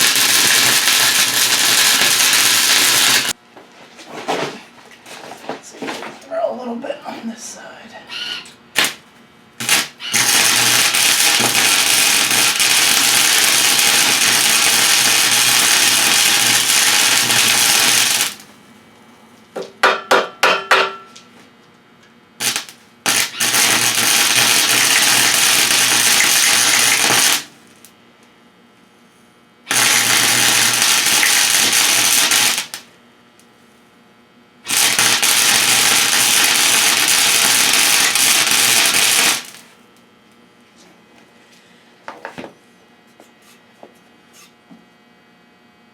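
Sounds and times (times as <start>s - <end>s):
electric welding hiss: 0.0s - 3.4s, 8.8s - 9.0s, 9.6s - 18.5s, 22.4s - 27.9s, 29.7s - 32.9s, 34.7s - 39.8s.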